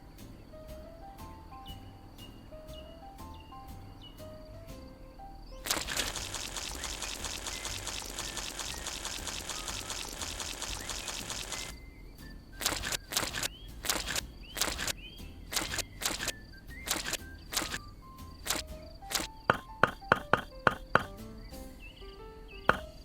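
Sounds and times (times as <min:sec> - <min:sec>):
faint bird chirps: 0:05.4 - 0:18.6, 0:21.3 - 0:23.0
fast dense rattling: 0:05.6 - 0:11.7
sharp knocks: 0:19.2 - 0:21.2, 0:22.7 - 0:23.0.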